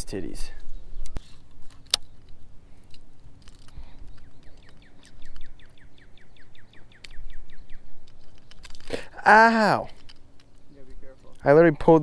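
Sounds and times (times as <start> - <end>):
faint wind rumble: 0.0 - 12.0
small songbird trilling: 3.7 - 8.6.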